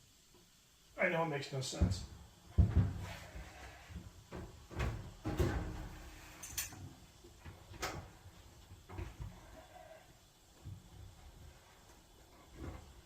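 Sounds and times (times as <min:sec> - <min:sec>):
knocks inside sheet-metal cabinet: 0:04.7 - 0:06.1.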